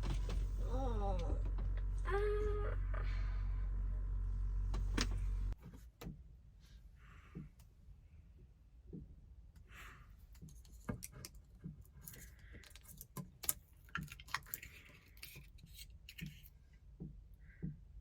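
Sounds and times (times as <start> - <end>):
small clicks and metallic clinks: 10.4 - 16.6.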